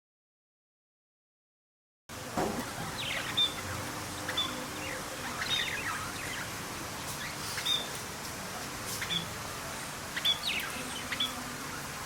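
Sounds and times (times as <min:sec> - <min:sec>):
steady background hiss: 0:02.1 - 0:12.0
birds chirping: 0:02.4 - 0:08.1, 0:08.9 - 0:12.0.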